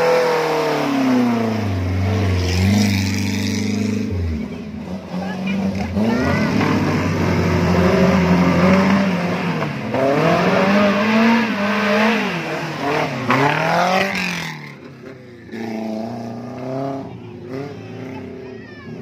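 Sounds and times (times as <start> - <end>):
engine revving under load: 0.0 - 19.0.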